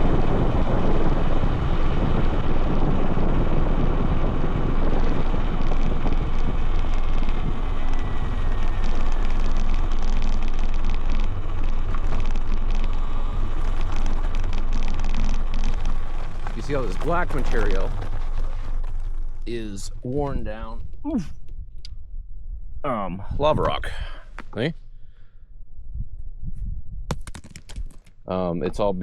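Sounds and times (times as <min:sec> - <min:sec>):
wind rushing over microphone: 0:00.0 - 0:24.7, 0:25.6 - 0:29.0
faint falling whine: 0:00.0 - 0:29.0
tyre noise on dry ground: 0:03.7 - 0:21.2.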